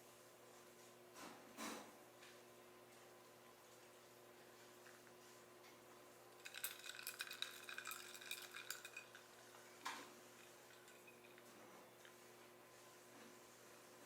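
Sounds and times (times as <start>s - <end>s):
utensil clinking against dishware: 6.4s - 11.6s.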